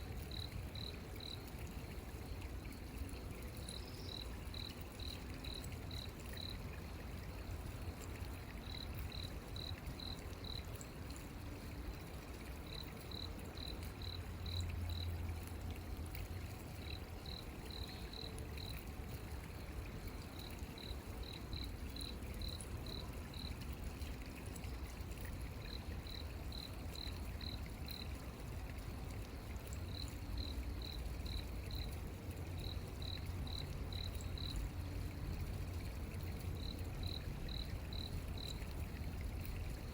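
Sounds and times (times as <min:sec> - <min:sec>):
cricket chirping: 0:32.6 - 0:34.6, 0:36.6 - 0:38.6.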